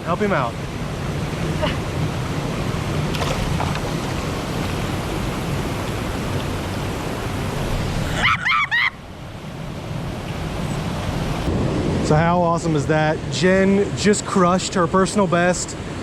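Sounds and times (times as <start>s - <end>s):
waterfall and creek rushing: 0.0s - 12.4s.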